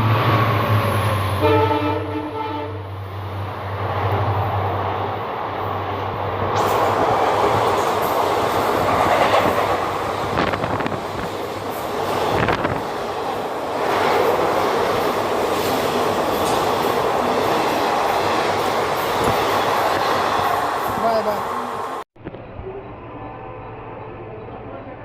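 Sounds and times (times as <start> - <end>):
train wheels rushing on rail: 3.0 - 22.0.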